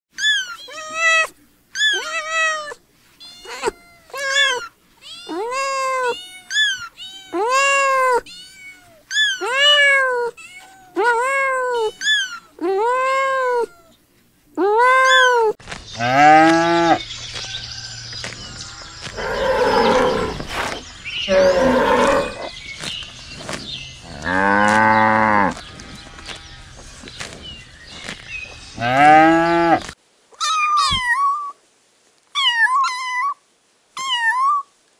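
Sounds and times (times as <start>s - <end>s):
kittens meowing: 0.2s - 13.9s, 14.6s - 15.6s, 30.4s - 31.5s
cow mooing: 19.2s - 20.6s, 21.3s - 22.5s.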